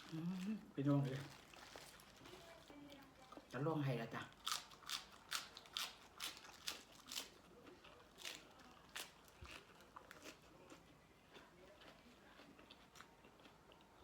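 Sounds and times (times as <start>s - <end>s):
person chewing crunchy food: 4.4s - 14.0s.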